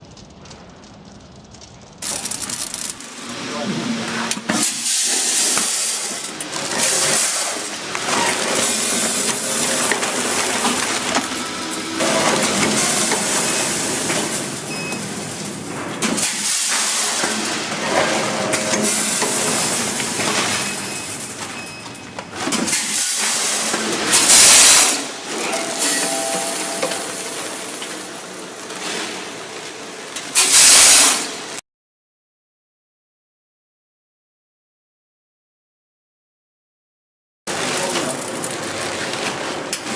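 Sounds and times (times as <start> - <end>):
packing machine clatter: 2.0 - 31.5, 37.5 - 39.9.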